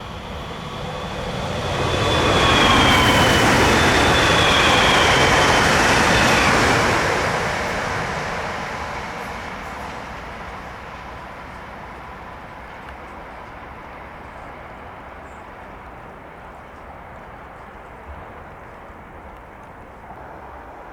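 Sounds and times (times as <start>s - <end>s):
train whine dropping in pitch: 0.0s - 9.5s
train passing at speed: 0.0s - 20.9s.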